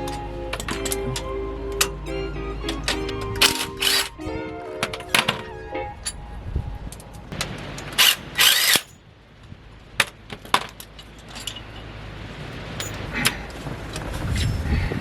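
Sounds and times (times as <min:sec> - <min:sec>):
metal tools clinking: 0:00.0 - 0:04.2, 0:07.8 - 0:09.0, 0:10.4 - 0:13.4.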